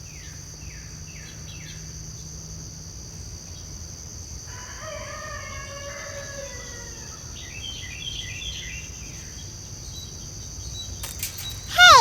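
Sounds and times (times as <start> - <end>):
insect drone: 0.0 - 12.0
complex bird call: 11.3 - 12.0.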